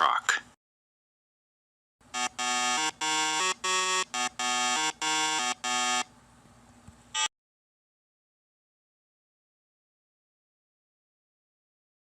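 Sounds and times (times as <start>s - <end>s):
buzzy two-pitch horn blasts: 2.1s - 6.1s.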